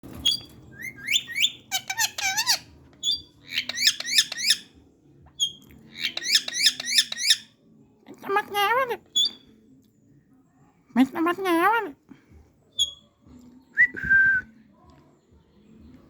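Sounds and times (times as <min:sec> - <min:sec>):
parrot chirping and whistling: 0:00.2 - 0:04.7, 0:05.4 - 0:07.4.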